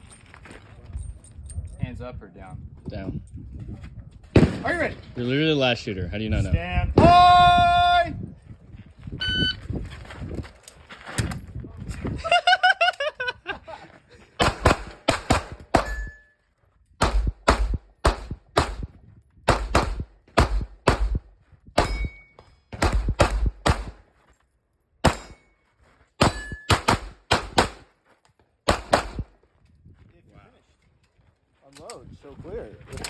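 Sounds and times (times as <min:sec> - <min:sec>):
pistol shots: 0:04.4 - 0:04.9, 0:14.4 - 0:16.1, 0:17.0 - 0:18.9, 0:19.5 - 0:24.0, 0:25.0 - 0:25.5, 0:26.2 - 0:27.9, 0:28.7 - 0:29.3
brief ringing tones: 0:09.2 - 0:09.6
shot timer beep: 0:09.2 - 0:09.6.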